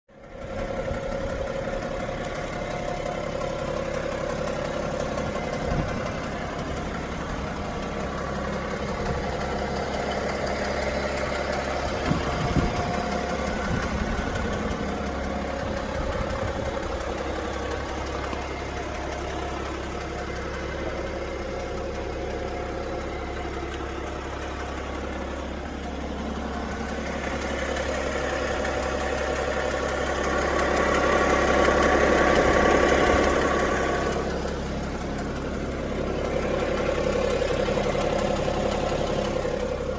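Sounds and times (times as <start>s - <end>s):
diesel engine idling: 0.1s - 39.9s
engine knocking: 0.1s - 39.9s.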